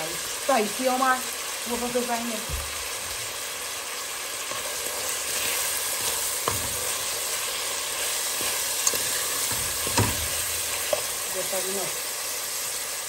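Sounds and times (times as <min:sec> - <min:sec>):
fish sizzling in a pot: 0:00.0 - 0:13.0
utensil knocking on pot: 0:09.5 - 0:10.3.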